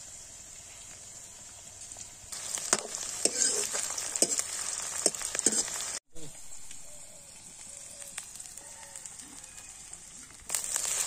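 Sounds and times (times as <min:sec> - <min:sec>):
onions sizzling in hot oil: 0:00.0 - 0:11.0
ladle scraping and knocking wok: 0:02.3 - 0:06.0.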